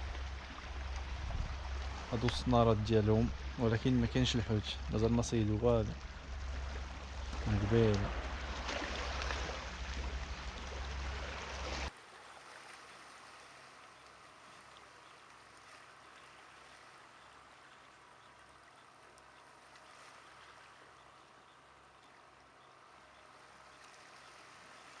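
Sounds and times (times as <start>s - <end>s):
sea surf washing on beach: 0.0s - 13.8s.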